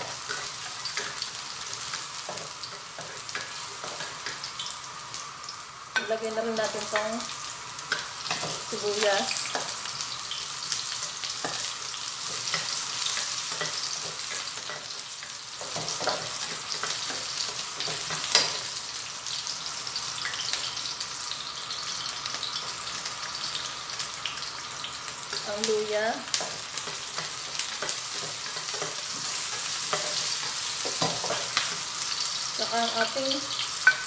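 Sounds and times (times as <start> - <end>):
spatula scraping and tapping a wok: 0.0 - 4.7, 7.8 - 8.8, 9.5 - 18.8, 26.3 - 32.0, 33.8 - 34.0
onion and garlic sizzling in oil: 0.0 - 34.0.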